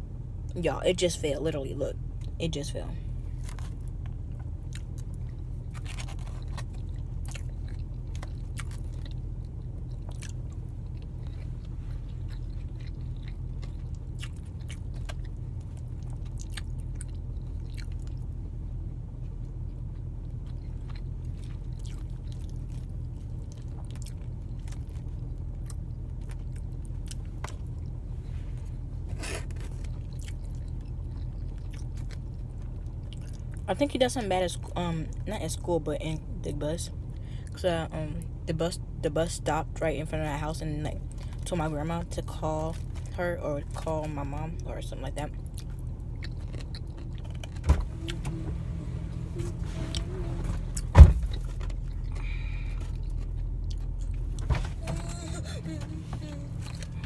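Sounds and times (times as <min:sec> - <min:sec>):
low hum inside a car: 0:00.0 - 0:57.0
person chewing food: 0:03.4 - 0:18.4, 0:19.4 - 0:33.6, 0:45.3 - 0:47.6, 0:50.8 - 0:54.5, 0:56.2 - 0:57.0.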